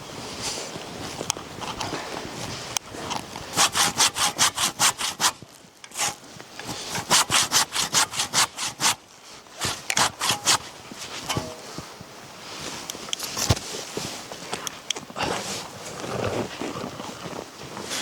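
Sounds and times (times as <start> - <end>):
hand saw cutting wood: 3.5 - 9.0, 9.6 - 11.6.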